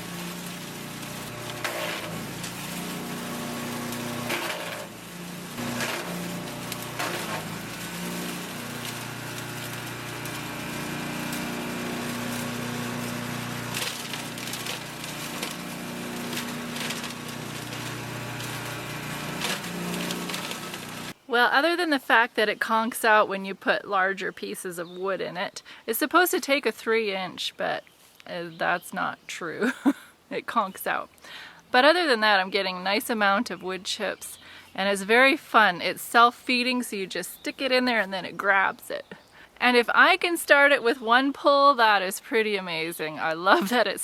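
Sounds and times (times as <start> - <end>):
branches crackling and splintering: 0.0 - 21.2
wood chipper engine running: 0.0 - 21.2, 43.4 - 43.8.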